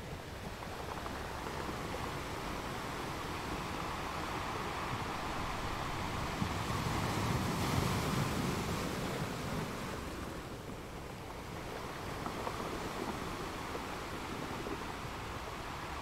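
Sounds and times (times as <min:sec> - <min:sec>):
surf washing on a beach: 0:00.0 - 0:16.0.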